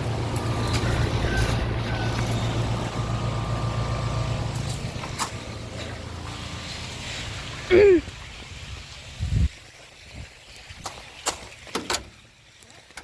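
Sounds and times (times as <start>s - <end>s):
compressor hum: 0.0s - 8.4s
fan air noise: 0.0s - 9.6s.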